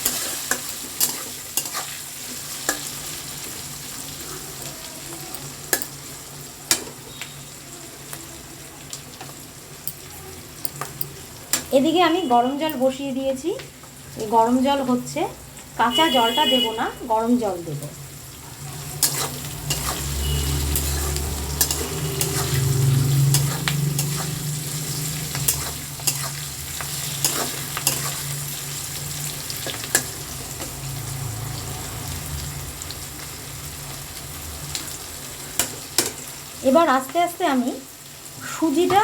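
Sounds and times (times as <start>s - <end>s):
spatula scraping a pan: 0.0s - 2.0s, 18.8s - 28.6s
vegetables sizzling in a pan: 0.0s - 39.0s.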